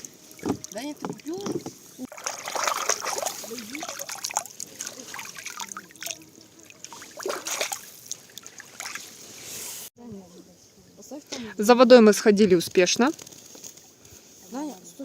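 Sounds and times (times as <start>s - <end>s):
stream trickling and gurgling: 0.0s - 9.9s
water splashes: 0.0s - 9.9s.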